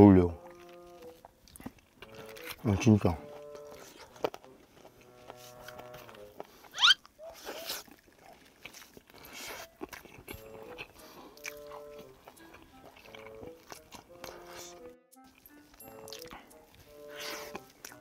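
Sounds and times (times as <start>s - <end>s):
soft background music: 0.0s - 6.7s, 8.1s - 18.0s
person chewing and biting food: 0.4s - 18.0s.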